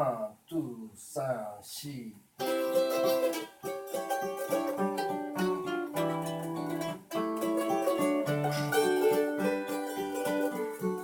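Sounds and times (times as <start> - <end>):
acoustic guitar blues: 2.4 - 11.0.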